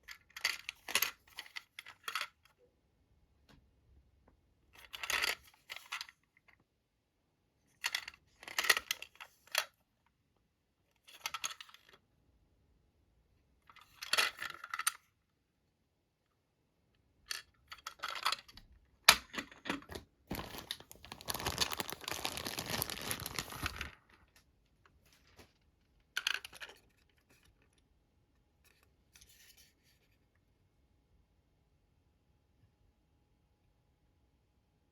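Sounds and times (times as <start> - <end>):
packaging rustling and tearing: 20.3 - 24.2.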